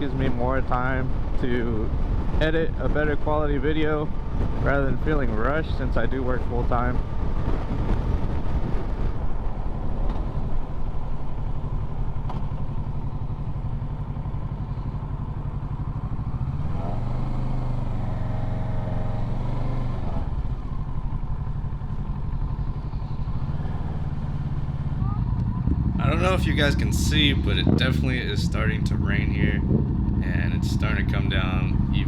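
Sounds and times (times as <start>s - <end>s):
motorcycle engine cruising: 0.0s - 32.0s
wind and road rush: 0.0s - 32.0s.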